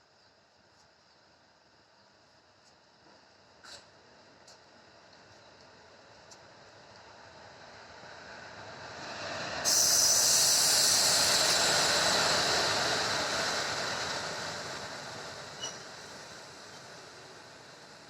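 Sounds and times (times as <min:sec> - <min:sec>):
passenger train passing: 0:06.4 - 0:18.0.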